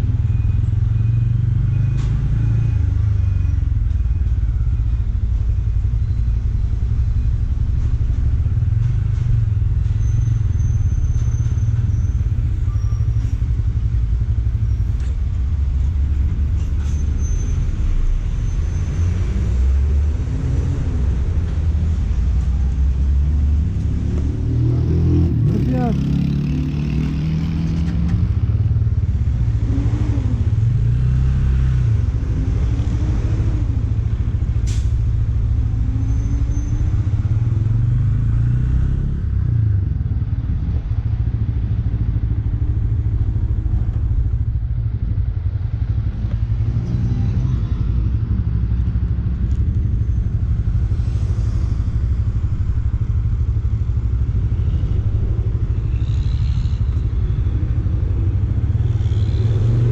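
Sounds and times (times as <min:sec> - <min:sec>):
motorcycle engine running: 0:47.8 - 0:59.9.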